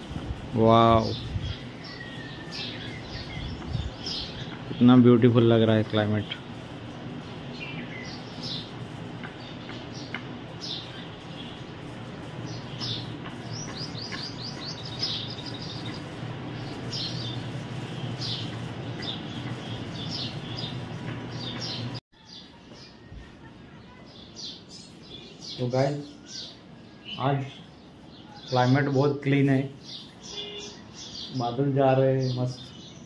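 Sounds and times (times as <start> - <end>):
steady low hum: 0.0 - 22.0
birds chirping: 0.0 - 33.0.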